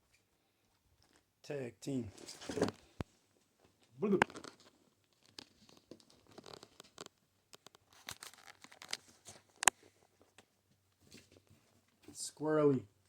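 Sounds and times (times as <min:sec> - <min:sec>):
kittens scrabbling and scratching: 0:02.1 - 0:12.2.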